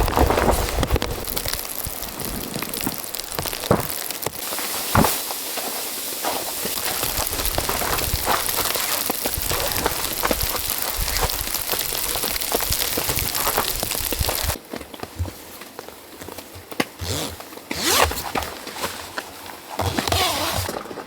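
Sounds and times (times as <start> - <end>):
heavy rain pattering: 0.0 - 14.6.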